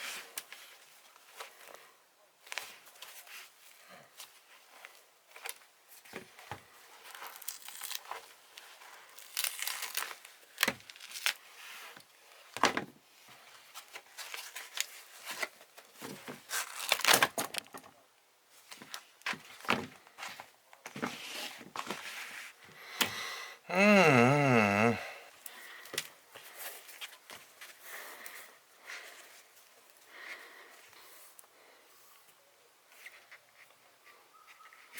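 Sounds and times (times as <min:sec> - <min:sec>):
rubber sole tearing: 0:16.5 - 0:17.2.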